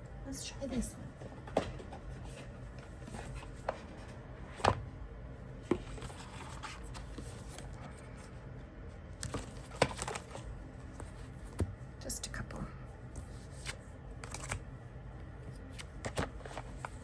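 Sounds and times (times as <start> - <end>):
cards rustling: 5.7 - 8.1, 9.2 - 11.6, 13.2 - 14.7.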